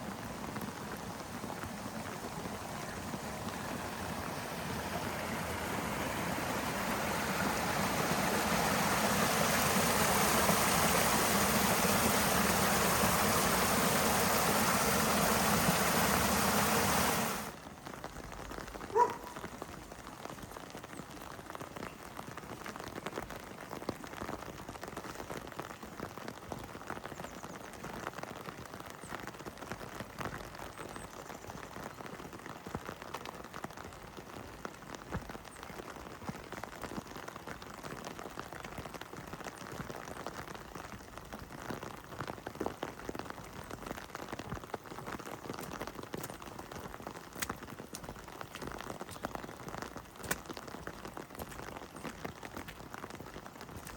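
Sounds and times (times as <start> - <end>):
heavy rain hissing: 0.0 - 17.6
raindrops pattering on hard surfaces: 0.0 - 53.9.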